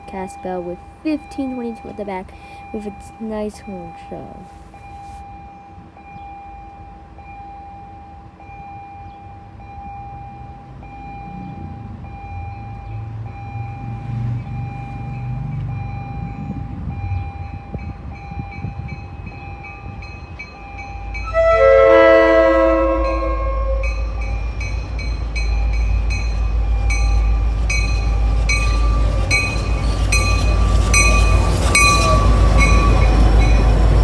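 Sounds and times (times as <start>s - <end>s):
locomotive engine rumble: 0.0s - 5.2s, 10.9s - 34.0s
locomotive bell ringing: 0.0s - 34.0s
train air horn blast: 21.2s - 24.1s.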